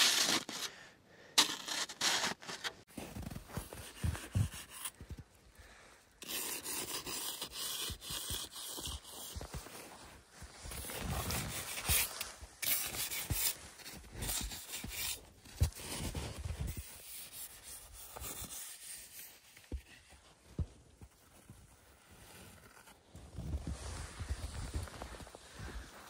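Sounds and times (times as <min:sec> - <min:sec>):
snow crunching and scraping: 0:00.0 - 0:05.3, 0:06.3 - 0:26.0.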